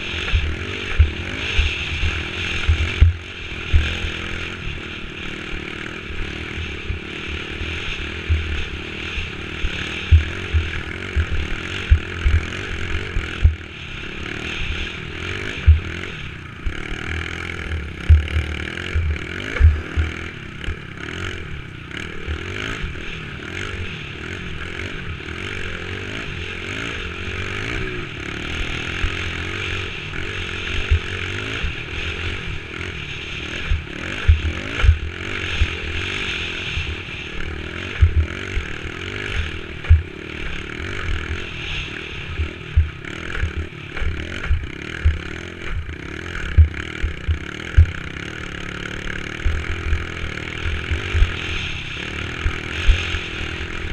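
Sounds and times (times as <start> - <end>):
dirt bike engine running: 0.0 - 53.9
steady rushing noise: 0.0 - 53.9
short dull thumps: 18.1 - 20.1, 38.0 - 38.3, 39.8 - 40.1, 46.5 - 48.0.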